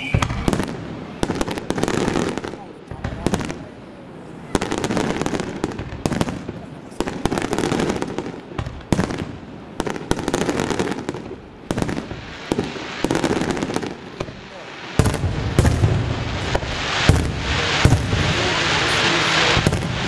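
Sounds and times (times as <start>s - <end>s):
firework shells bursting: 8.5s - 20.0s
steady rushing noise: 14.1s - 20.0s.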